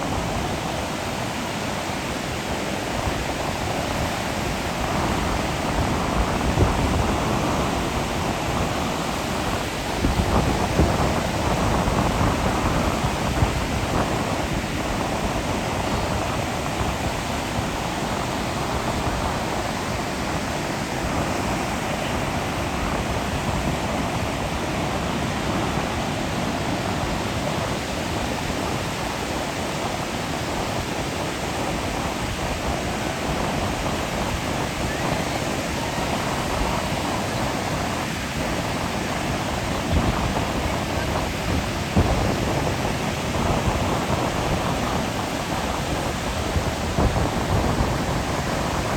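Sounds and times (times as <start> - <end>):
ocean surf breaking: 0.0 - 48.9.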